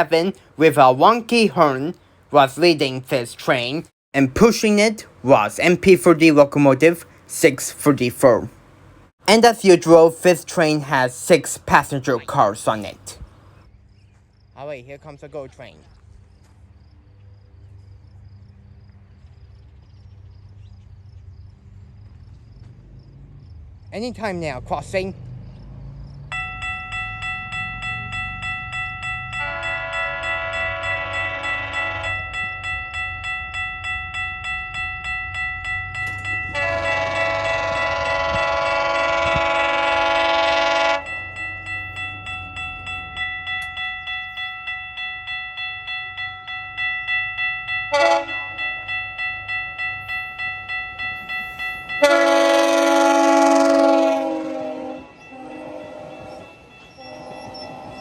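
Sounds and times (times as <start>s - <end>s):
level-crossing bell ringing: 26.3s - 39.0s, 40.6s - 52.7s, 54.7s - 58.0s
train horn blasts: 29.3s - 32.3s, 36.4s - 41.9s, 47.9s - 48.8s, 51.1s - 58.0s.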